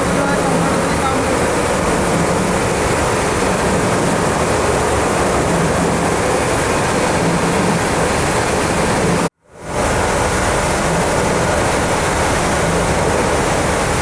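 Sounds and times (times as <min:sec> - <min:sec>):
rushing air: 0:00.0 - 0:14.0.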